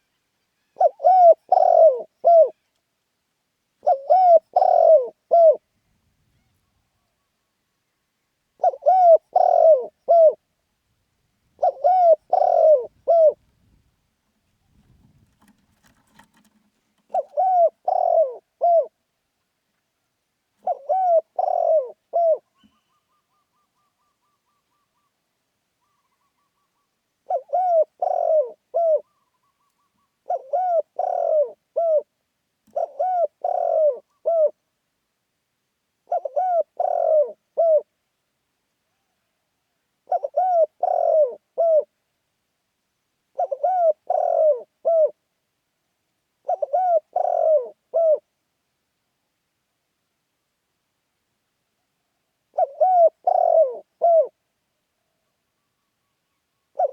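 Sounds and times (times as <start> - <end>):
dove cooing: 0.7 - 2.6, 3.8 - 5.6, 8.6 - 10.4, 11.6 - 13.6, 14.7 - 19.0, 20.6 - 25.2, 25.8 - 34.6, 36.0 - 37.9, 40.0 - 41.9, 43.3 - 45.2, 46.4 - 48.3, 52.5 - 54.4.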